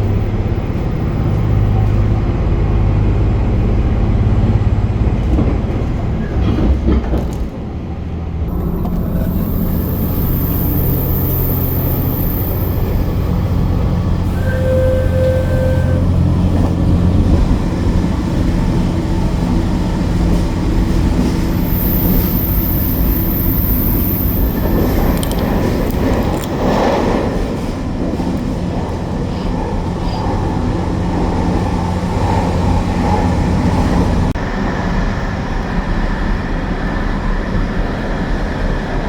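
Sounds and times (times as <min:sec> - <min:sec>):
diesel train rumbling on rails: 0:00.0 - 0:39.0
short clear tone: 0:08.5 - 0:16.2.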